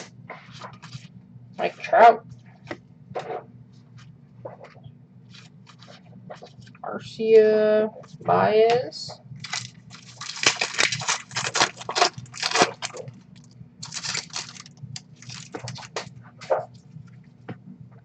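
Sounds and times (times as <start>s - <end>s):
card wrappers crinkling: 9.4s - 16.1s.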